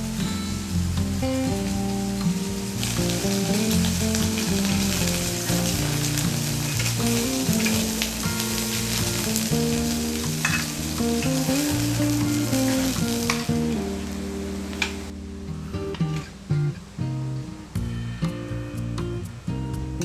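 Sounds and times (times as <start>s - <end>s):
food sizzling on a grill: 0.0s - 15.1s.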